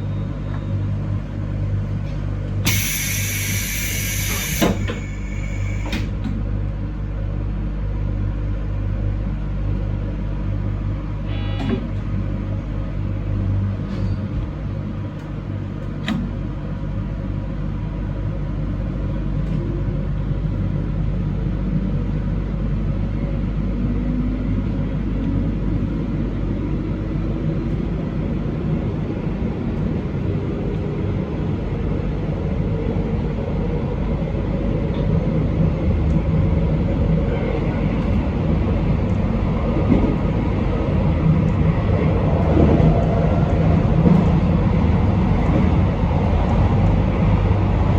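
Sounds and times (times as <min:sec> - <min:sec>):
rising drive tone: 0:02.7 - 0:06.0
train wheels rumbling: 0:25.8 - 0:47.9.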